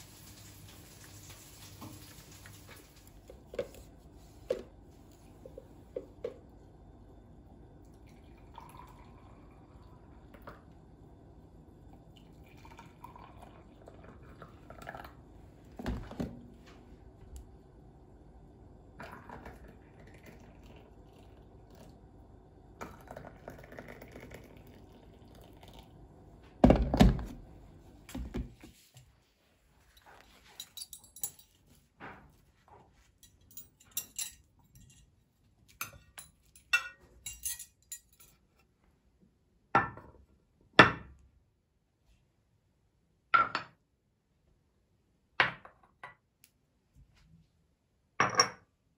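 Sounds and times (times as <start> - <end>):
dishes and utensils clinking: 30.0 - 31.8, 33.2 - 38.5.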